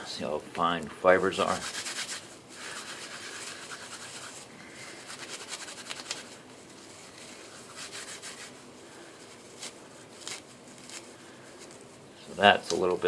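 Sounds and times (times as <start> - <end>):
bark rubbed and pulled apart: 1.5 - 11.9.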